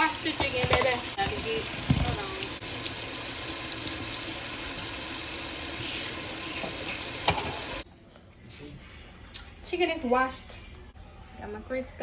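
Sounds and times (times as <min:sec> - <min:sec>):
tap running into sink: 0:00.2 - 0:02.6, 0:06.5 - 0:07.8.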